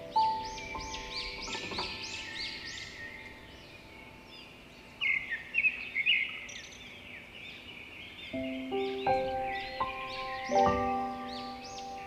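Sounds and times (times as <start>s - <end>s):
soft background music: 0.0s - 5.0s, 8.3s - 12.0s
birds chirping: 0.0s - 12.0s
harsh bird calls: 0.0s - 12.0s.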